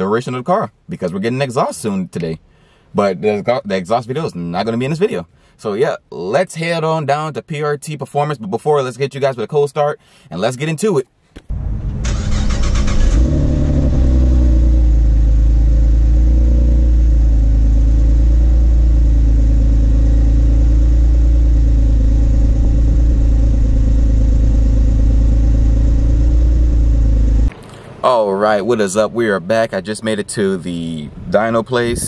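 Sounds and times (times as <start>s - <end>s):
car starter cranking: 11.5s - 14.8s
car engine idling: 11.5s - 28.6s.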